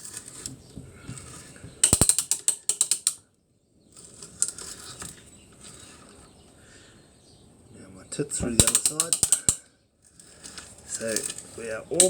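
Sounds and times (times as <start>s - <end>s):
drill bit scraping into wood: 0.0s - 3.1s, 8.4s - 12.0s
brace ratchet clicking: 1.2s - 3.2s, 8.5s - 9.6s.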